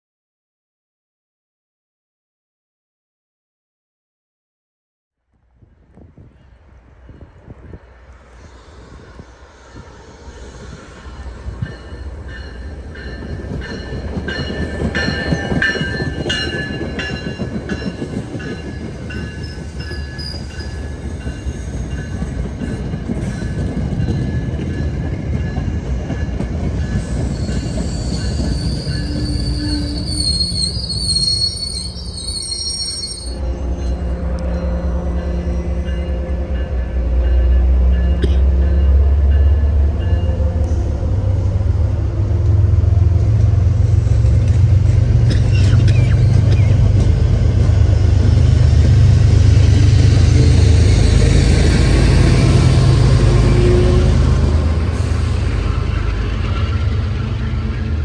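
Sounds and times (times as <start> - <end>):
train wheels rumbling: 5.6 - 58.0
high wheel squeal: 27.0 - 35.8, 45.4 - 46.8.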